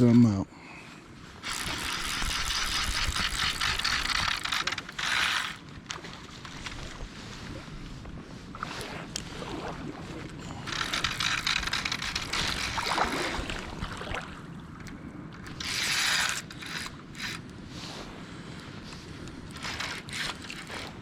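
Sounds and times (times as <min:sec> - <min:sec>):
fishing reel clicking and ratcheting: 0:01.4 - 0:06.0, 0:10.6 - 0:12.9, 0:15.5 - 0:17.4, 0:19.5 - 0:21.0.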